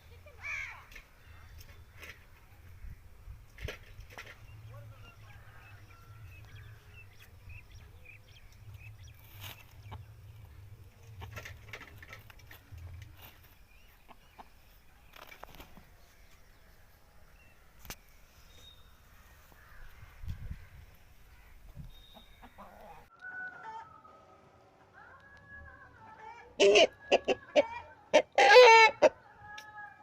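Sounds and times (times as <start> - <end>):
faint chickens: 0.0 - 30.0.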